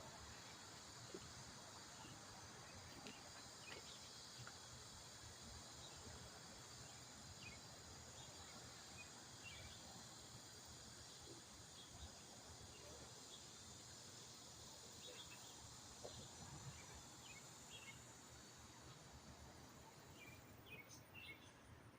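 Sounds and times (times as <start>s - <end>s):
faint background hiss: 0.0s - 21.9s.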